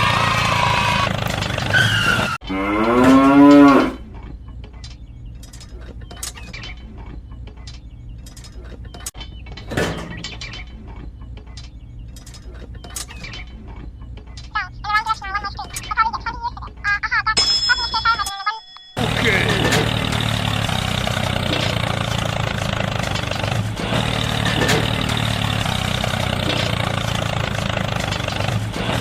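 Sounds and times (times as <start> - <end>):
cow mooing: 2.4 - 4.0.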